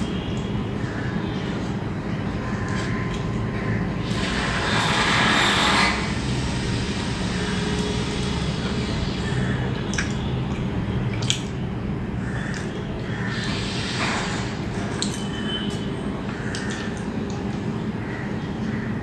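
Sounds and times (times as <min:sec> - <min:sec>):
person chewing food: 0:02.6 - 0:03.6.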